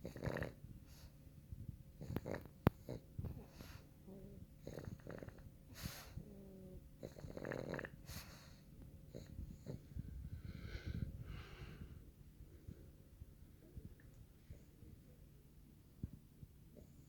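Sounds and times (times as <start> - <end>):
dog snoring with raspy snorts: 0.0 - 1.1, 2.0 - 10.0.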